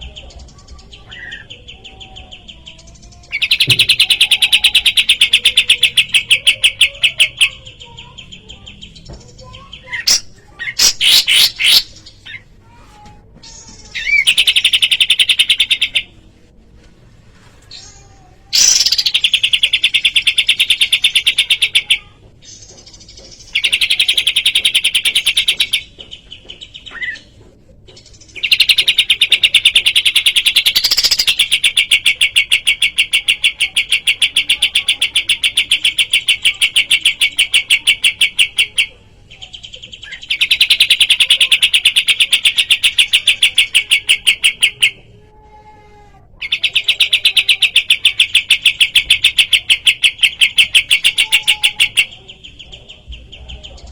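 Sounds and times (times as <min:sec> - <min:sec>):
songbird rapid chirps: 0:00.0 - 0:16.3, 0:17.7 - 0:45.1, 0:46.3 - 0:53.9.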